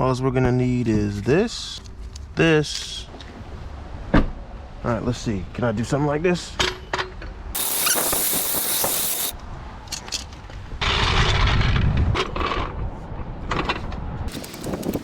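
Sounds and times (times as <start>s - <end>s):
hissing rustle: 7.6s - 9.4s
scraping and rubbing: 7.6s - 9.4s
sharp clicks: 14.3s - 15.0s.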